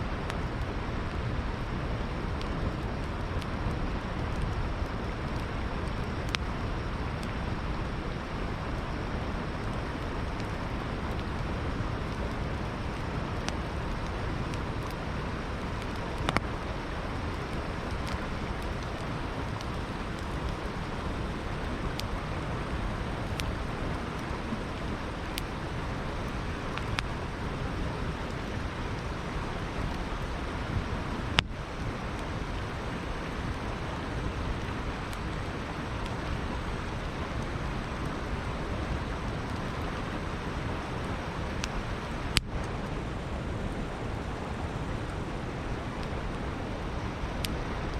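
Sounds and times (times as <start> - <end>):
campfire crackling: 0.0 - 47.9
river flowing: 0.0 - 47.9
burning wood popping: 0.2 - 42.8.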